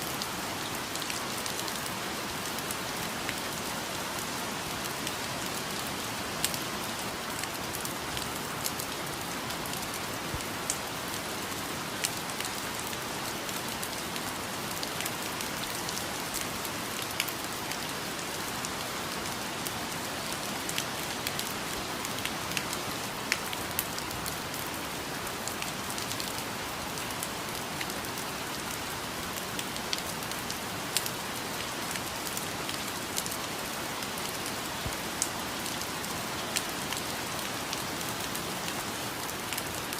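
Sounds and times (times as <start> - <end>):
rain falling on foliage: 0.0 - 39.9.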